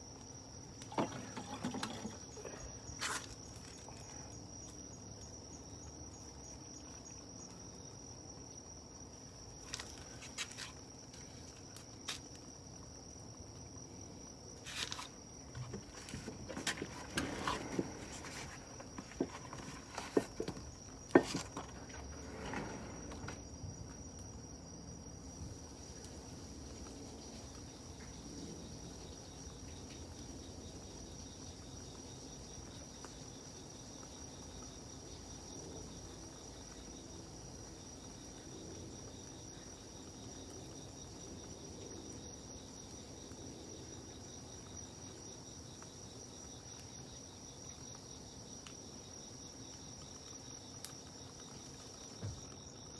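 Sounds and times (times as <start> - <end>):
crickets trilling: 0.0 - 52.9
wood popping in campfire: 14.4 - 24.5.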